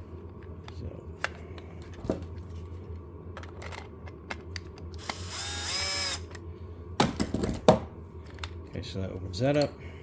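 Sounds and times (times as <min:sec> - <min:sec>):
electric screwdriver whirring: 0:05.0 - 0:06.4.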